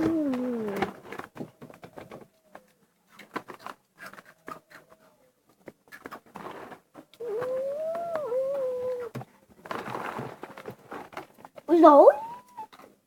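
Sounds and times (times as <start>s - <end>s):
long wavering mewing call: 7.2s - 9.1s.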